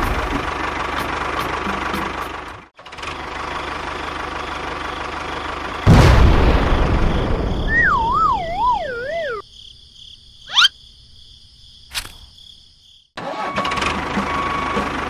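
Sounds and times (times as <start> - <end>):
siren-like warble: 7.7 - 9.4
single click: 11.9 - 12.3.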